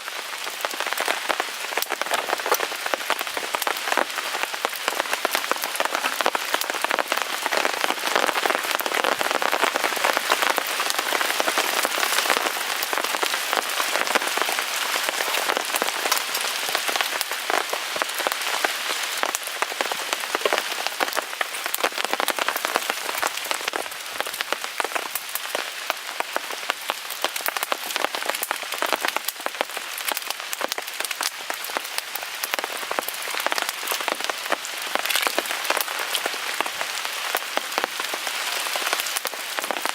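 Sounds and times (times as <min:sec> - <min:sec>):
rain on a tarp: 0:00.0 - 0:39.9
wood fire crackling: 0:00.0 - 0:39.9.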